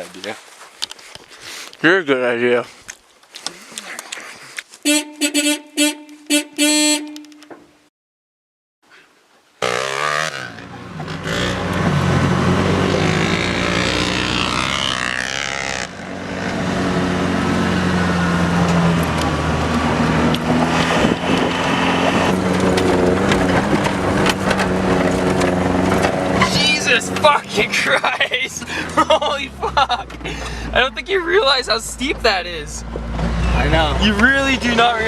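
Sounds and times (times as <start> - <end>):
vehicle engine running: 9.6 - 35.0
wind rushing over microphone: 19.6 - 26.3.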